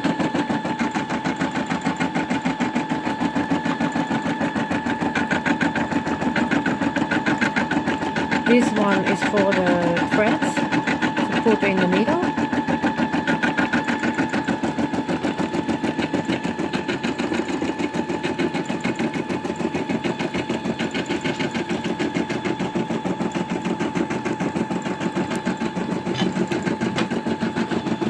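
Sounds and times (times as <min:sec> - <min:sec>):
motor whine: 0:00.0 - 0:28.0
embroidery needle stitching: 0:00.1 - 0:22.5.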